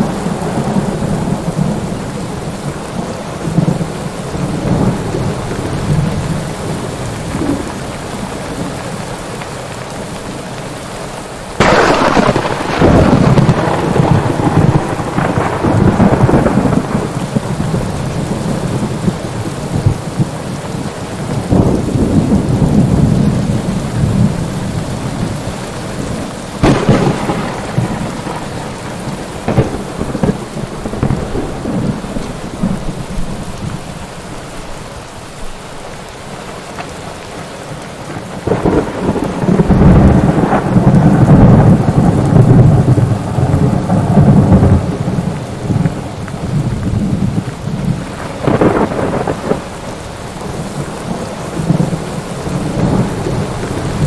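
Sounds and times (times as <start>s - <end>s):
heavy rain: 0.0s - 54.0s
thunder cracks: 11.6s - 20.3s, 26.6s - 33.8s, 38.3s - 54.0s
rolling thunder rumble: 11.6s - 34.3s, 38.1s - 54.0s.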